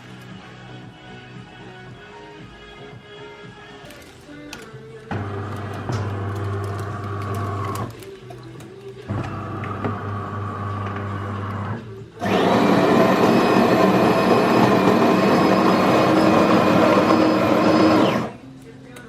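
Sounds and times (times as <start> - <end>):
electric appliance motor whirring: 5.1 - 8.1, 9.0 - 18.4.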